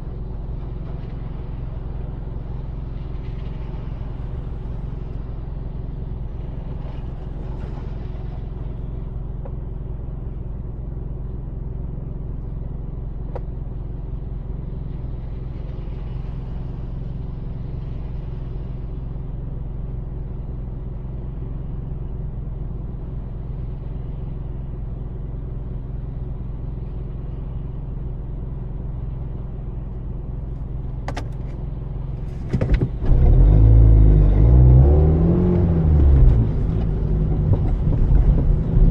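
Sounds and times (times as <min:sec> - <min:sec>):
car driving on wet street: 0:00.0 - 0:38.9
loud low rumble: 0:30.9 - 0:38.9.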